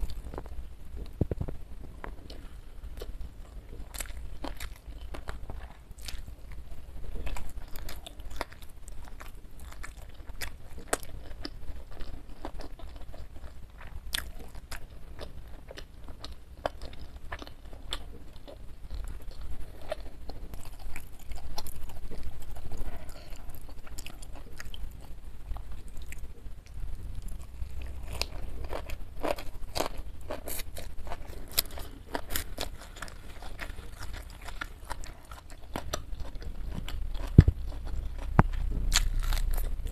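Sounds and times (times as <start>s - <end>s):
moist chewing: 0.0s - 39.9s
crisp crunching: 27.2s - 39.9s.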